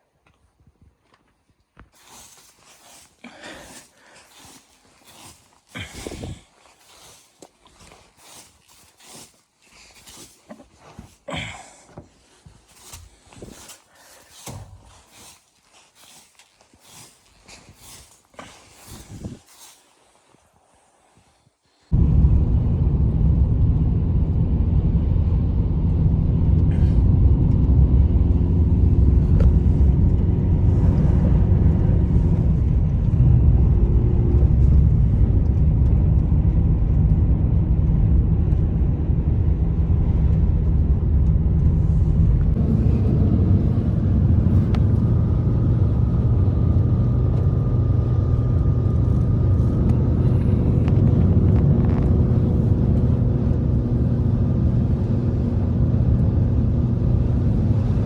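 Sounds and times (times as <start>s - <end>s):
blizzard wind rumbling: 2.0s - 58.0s
faint wind howling: 30.3s - 58.0s.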